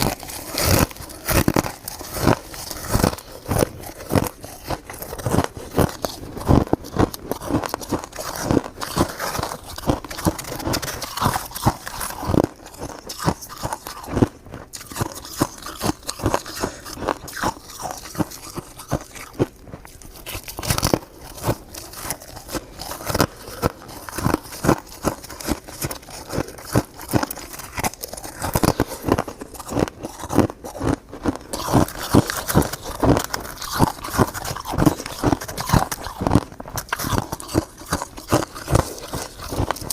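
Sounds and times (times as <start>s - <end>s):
person chewing ice: 0.0s - 39.9s.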